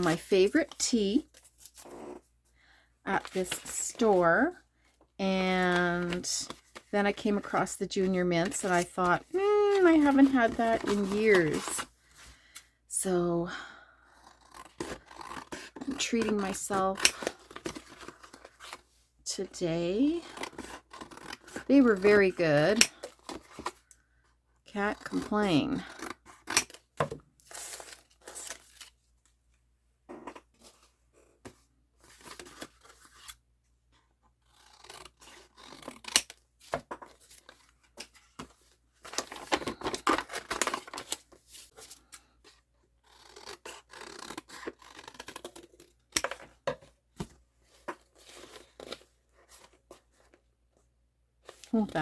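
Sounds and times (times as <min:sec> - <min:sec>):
scissors cutting paper: 0:09.7 - 0:11.8, 0:14.3 - 0:18.1, 0:24.9 - 0:26.7, 0:34.4 - 0:36.3, 0:43.0 - 0:46.4.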